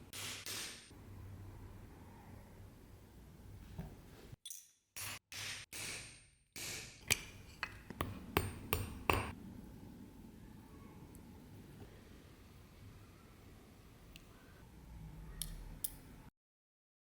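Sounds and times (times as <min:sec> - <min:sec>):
sharp metallic taps: 0:07.0 - 0:09.4.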